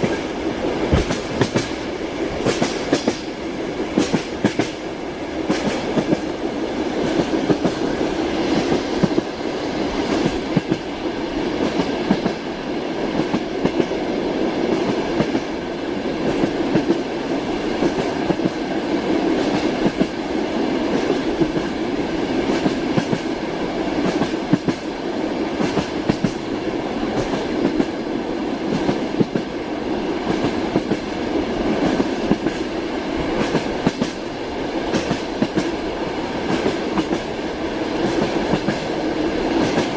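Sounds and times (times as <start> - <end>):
train rumble inside carriage: 0.0 - 39.9.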